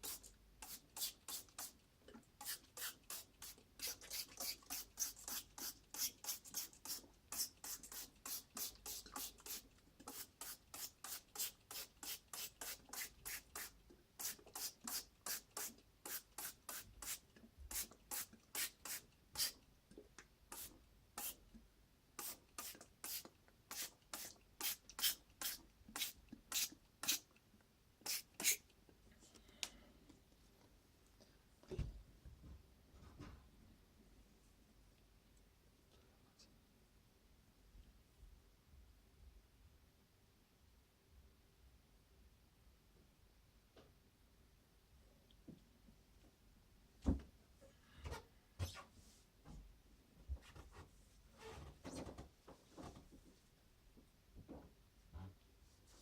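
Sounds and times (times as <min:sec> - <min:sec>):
scratchy brush strokes on surface: 0:02.4 - 0:19.6.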